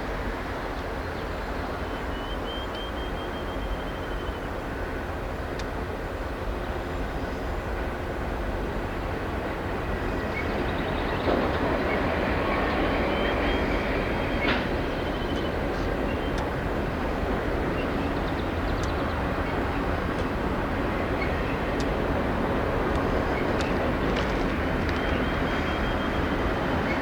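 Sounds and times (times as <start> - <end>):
freight train rumbling past: 4.3 - 27.0
rail clicks: 10.4 - 27.0.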